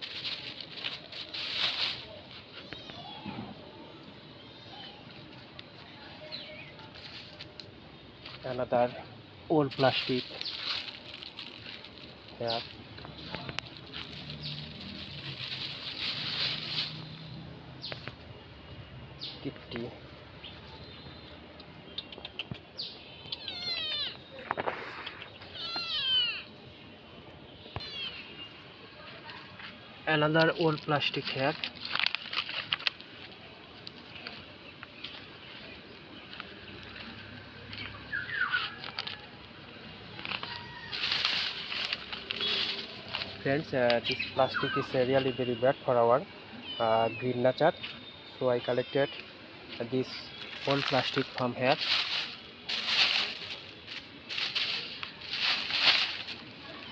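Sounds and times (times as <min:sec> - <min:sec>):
plastic and vegetation rustling: 0:00.0 - 0:03.7, 0:05.0 - 0:18.3, 0:29.0 - 0:37.8, 0:38.7 - 0:44.9, 0:49.1 - 0:56.9.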